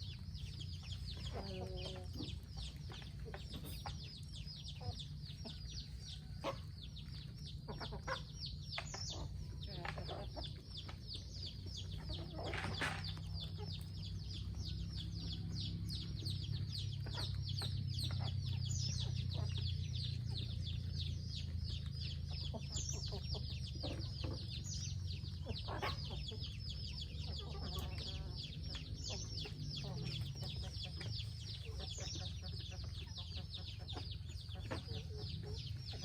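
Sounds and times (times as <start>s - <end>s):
chickens clucking: 0.0s - 36.0s
steady low hum: 13.0s - 36.0s.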